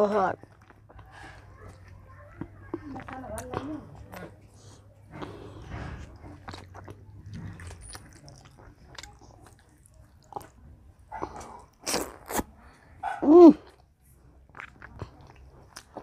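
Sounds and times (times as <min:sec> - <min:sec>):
wet chewing and lip clicks: 0:00.2 - 0:12.8, 0:13.6 - 0:16.0
sharp lip smacks: 0:11.2 - 0:12.5.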